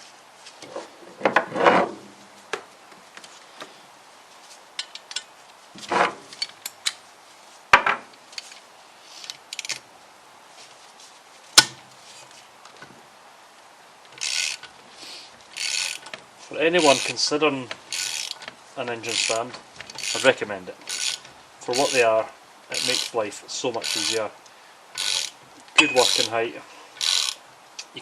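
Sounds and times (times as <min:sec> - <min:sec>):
socket wrench ratcheting: 0:14.2 - 0:14.7, 0:15.6 - 0:16.1, 0:17.9 - 0:18.5, 0:19.1 - 0:22.0, 0:22.8 - 0:23.2, 0:23.8 - 0:24.2, 0:25.0 - 0:26.3, 0:27.0 - 0:27.4
hand tools clinking on metal: 0:18.0 - 0:22.0, 0:22.8 - 0:23.2, 0:23.8 - 0:24.2, 0:25.0 - 0:26.4.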